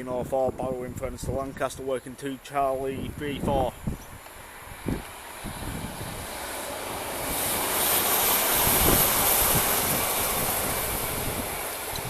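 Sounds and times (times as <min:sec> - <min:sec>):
high hiss: 0:03.1 - 0:12.0
train wheels on rails: 0:04.0 - 0:12.0.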